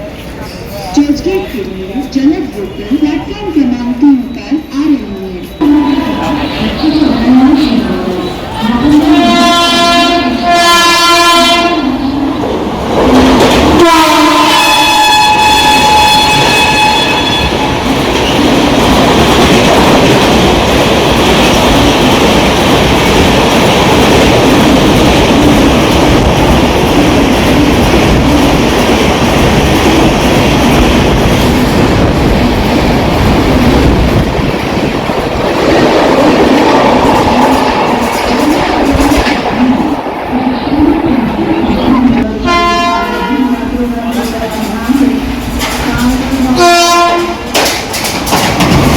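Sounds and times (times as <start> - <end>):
train horn blasts: 8.9 - 12.0, 13.8 - 17.7, 42.2 - 43.6, 46.5 - 47.6
train wheels clattering over rails: 12.5 - 39.6, 44.2 - 48.9.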